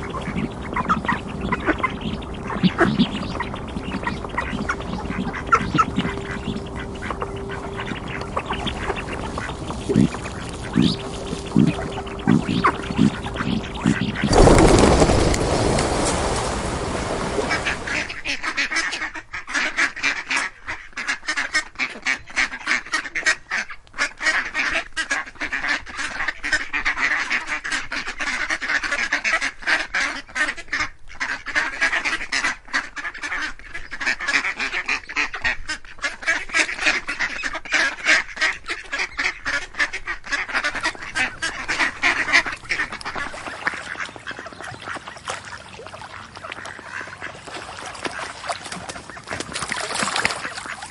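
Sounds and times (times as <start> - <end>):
low rumble: 0.0 - 18.4
ducks quacking: 0.0 - 50.9.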